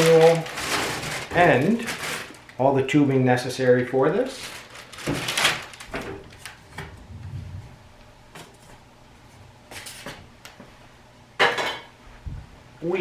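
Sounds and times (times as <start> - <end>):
paper rustling: 0.0 - 2.5, 4.4 - 6.9.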